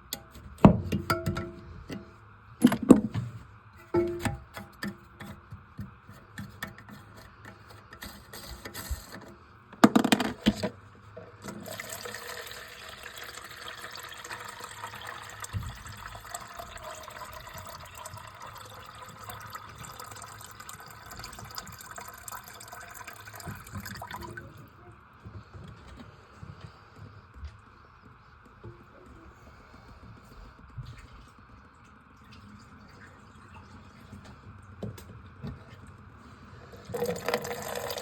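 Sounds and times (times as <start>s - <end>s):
water running into toilet tank: 3.8s - 5.5s, 11.3s - 24.6s, 36.8s - 38.0s.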